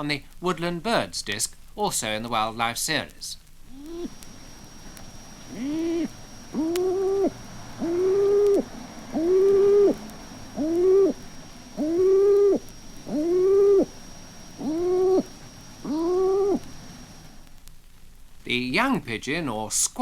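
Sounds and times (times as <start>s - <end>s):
pigeon cooing: 3.7s - 17.3s.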